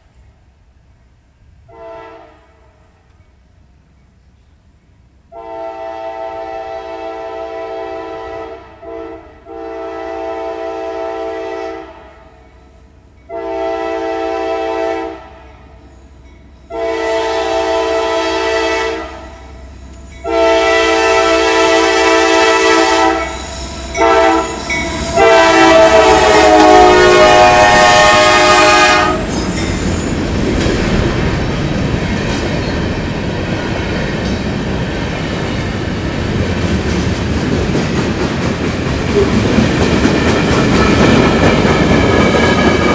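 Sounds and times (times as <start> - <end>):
locomotive air horn blasts: 1.7 - 2.9, 5.3 - 12.4, 13.3 - 15.8, 16.7 - 19.6, 20.2 - 30.2
train cars clacking on rails: 15.3 - 42.9.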